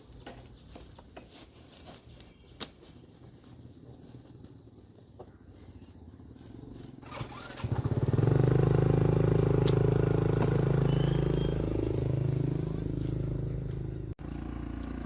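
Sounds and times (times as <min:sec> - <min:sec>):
small motorcycle engine: 0:06.7 - 0:15.0.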